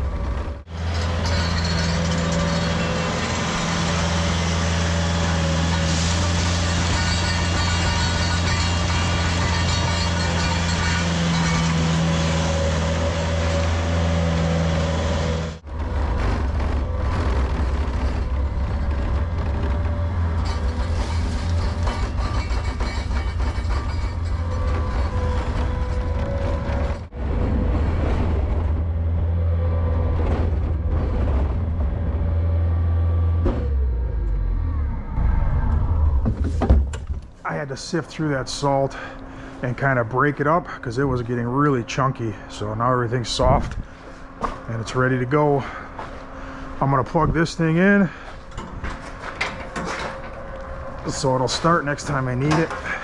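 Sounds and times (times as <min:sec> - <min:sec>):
loader engine running: 0:00.0 - 0:53.0
machine knocks and rattles: 0:15.6 - 0:27.1, 0:48.5 - 0:51.2.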